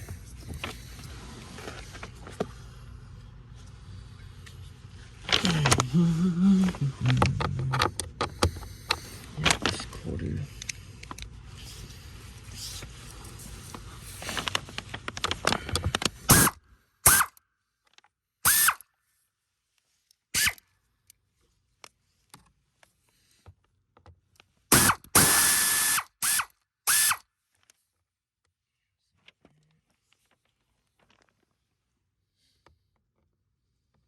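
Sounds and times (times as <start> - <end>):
power tool motor whine: 18.5 - 18.8, 24.7 - 27.2.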